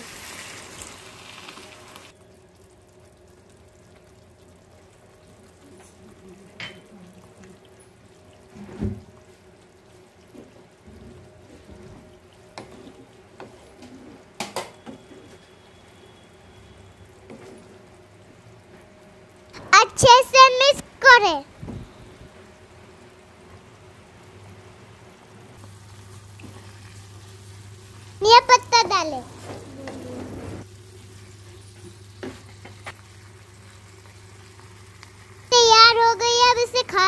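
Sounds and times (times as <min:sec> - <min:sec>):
curry sizzling in pan: 0:00.0 - 0:37.0
thump: 0:08.7 - 0:09.0.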